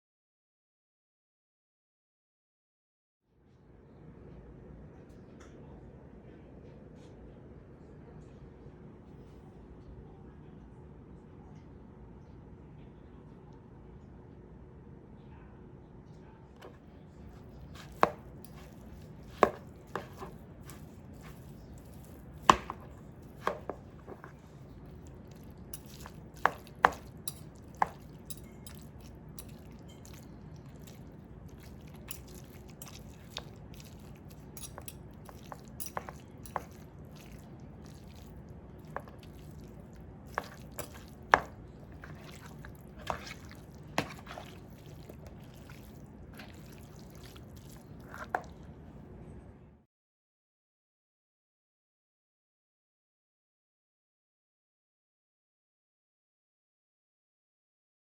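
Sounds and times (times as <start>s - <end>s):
kitchen utensils tapping: 17.4s - 24.3s, 25.8s - 30.9s, 31.6s - 37.4s, 40.3s - 43.4s.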